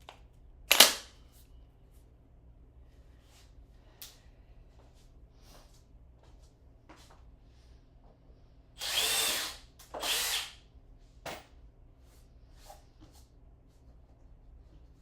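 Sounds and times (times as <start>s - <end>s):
power tool running: 8.8s - 10.6s.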